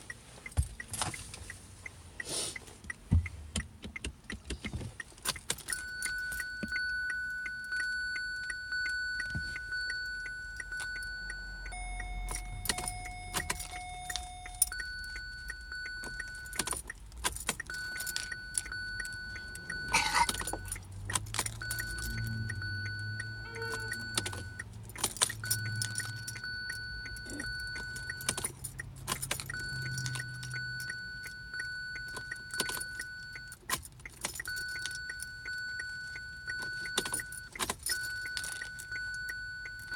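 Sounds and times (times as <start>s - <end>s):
clicking inside a car: 0.0s - 39.9s
keys jingling: 4.6s - 39.9s
high electronic warning tone: 5.7s - 16.7s, 17.6s - 20.9s, 21.6s - 24.7s, 25.4s - 28.5s
lower warning tone: 5.7s - 16.9s, 17.6s - 33.7s, 34.3s - 39.9s.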